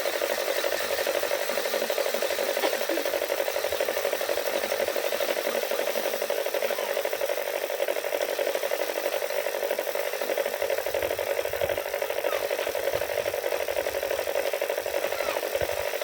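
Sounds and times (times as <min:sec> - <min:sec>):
threshing machine rattling: 0:00.0 - 0:16.0.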